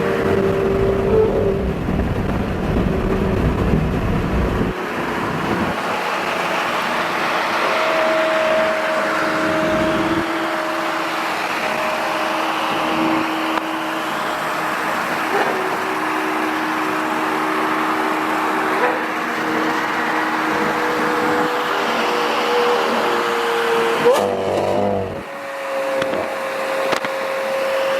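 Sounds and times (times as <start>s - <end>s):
heavy low rumble: 0.0s - 5.7s
car engine and road noise: 0.0s - 27.9s.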